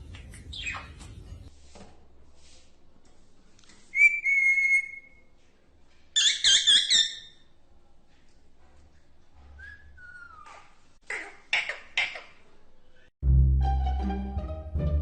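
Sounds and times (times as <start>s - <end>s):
parrot whistling: 3.9s - 5.2s.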